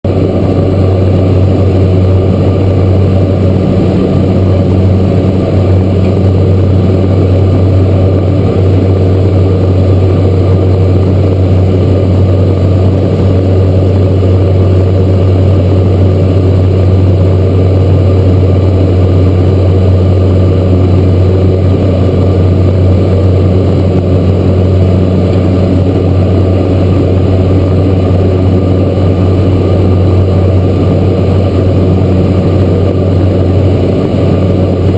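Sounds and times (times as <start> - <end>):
turboprop plane engine humming: 0.0 - 34.9.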